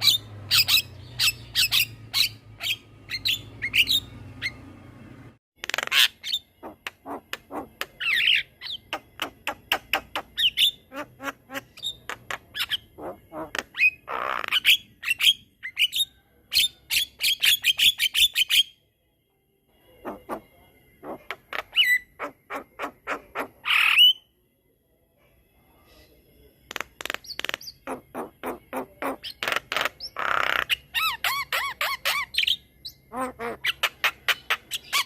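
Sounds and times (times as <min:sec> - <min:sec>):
bird chattering and whistling: 0:00.0 - 0:04.7, 0:05.6 - 0:18.6, 0:21.0 - 0:24.2, 0:26.7 - 0:35.0
bird harsh squawks: 0:05.6 - 0:16.0, 0:20.0 - 0:24.2, 0:26.8 - 0:35.0.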